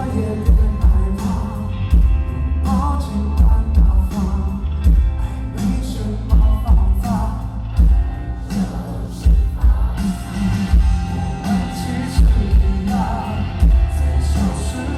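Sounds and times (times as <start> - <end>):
steady drum beat: 0.0 - 2.3, 3.4 - 14.9
rock band playing live: 0.0 - 14.9
person singing: 8.5 - 14.9.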